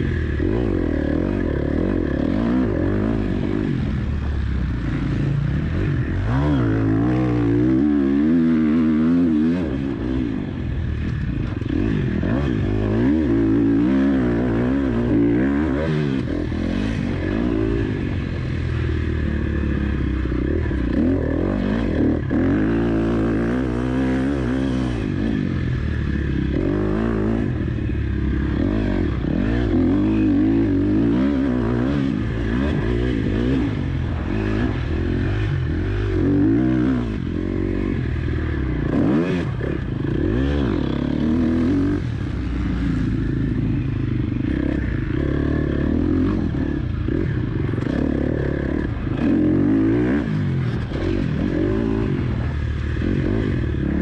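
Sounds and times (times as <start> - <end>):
motocross engine revving: 0.0 - 54.0.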